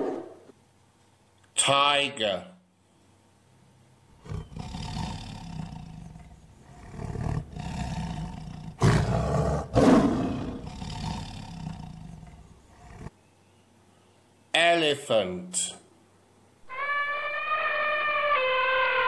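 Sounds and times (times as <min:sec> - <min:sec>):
tiger growling and roaring: 0:04.1 - 0:13.2.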